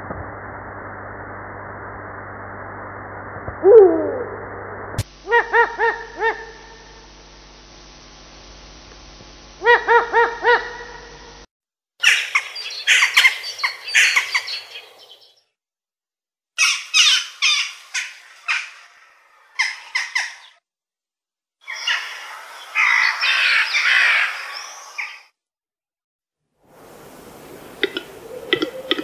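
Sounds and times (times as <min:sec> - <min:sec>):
bird harsh scratchy calls: 0:12.0 - 0:15.2, 0:16.6 - 0:20.6.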